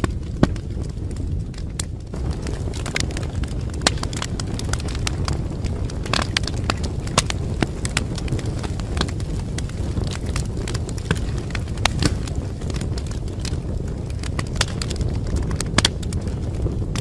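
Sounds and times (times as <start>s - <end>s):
burning wood crackling: 0.0s - 17.0s
fire flames rumbling: 0.0s - 17.0s.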